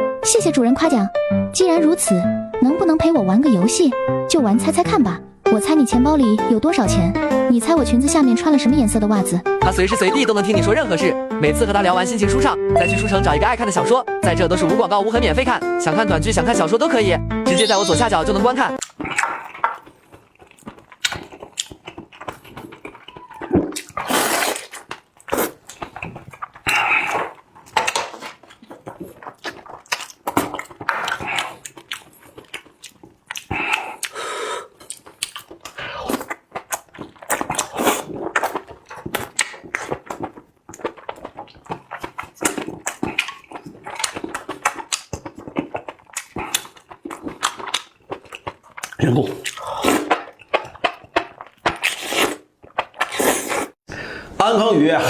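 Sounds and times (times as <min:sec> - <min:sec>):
wet chewing and mouth smacking: 0:18.7 - 0:53.8.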